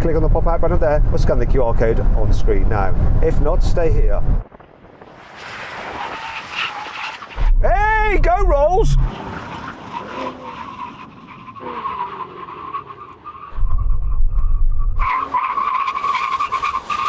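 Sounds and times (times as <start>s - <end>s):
low rumble: 7.4s - 9.2s, 13.6s - 15.1s.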